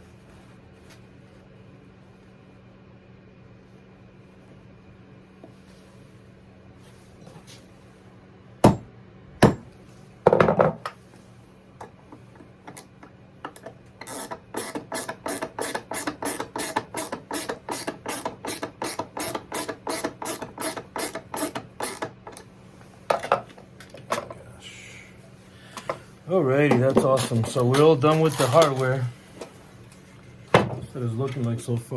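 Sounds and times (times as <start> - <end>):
sharp knocks: 8.6 - 9.7
ratchet clicking: 14.0 - 22.1.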